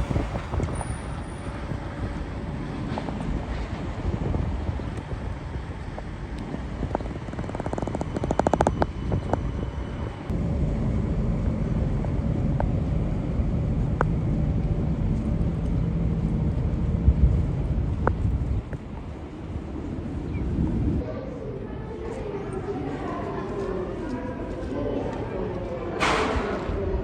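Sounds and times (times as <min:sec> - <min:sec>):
low hum: 0:00.0 - 0:21.1
train rumble: 0:00.0 - 0:27.0
sharp clicks: 0:07.0 - 0:09.4.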